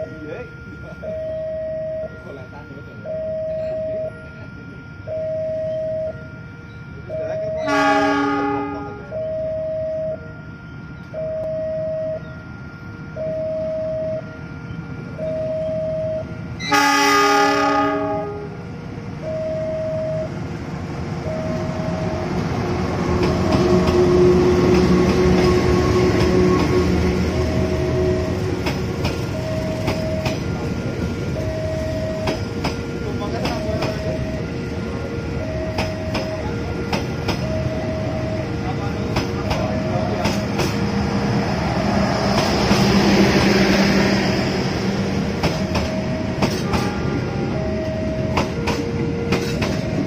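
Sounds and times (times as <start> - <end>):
level-crossing two-tone alarm: 0.0 - 50.0
train engine and wheel noise: 0.0 - 50.0
locomotive horn: 7.1 - 10.3, 12.8 - 20.3, 21.2 - 44.5, 45.4 - 50.0.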